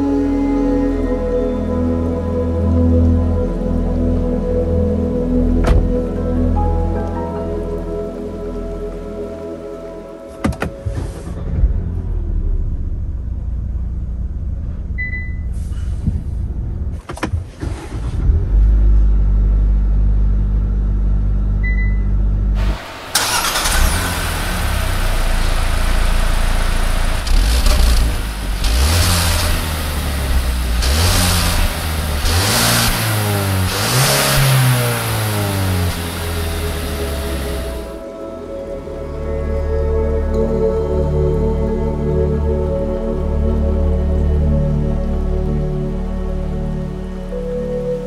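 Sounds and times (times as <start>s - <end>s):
car engine idling: 22.5s - 38.1s
engine revving in blips: 22.6s - 38.0s
steady hiss: 22.6s - 38.0s.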